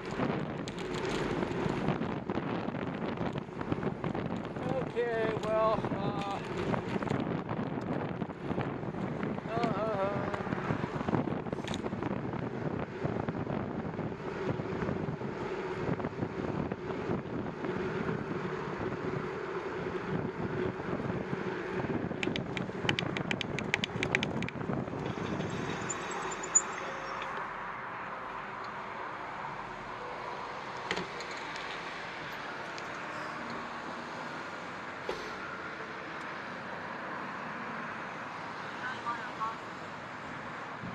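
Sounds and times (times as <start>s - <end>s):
bicycle rolling noise: 0.0s - 9.6s, 10.6s - 27.4s
traffic hum: 0.0s - 40.9s
wind: 0.0s - 40.9s
sharp ticks: 22.2s - 24.6s.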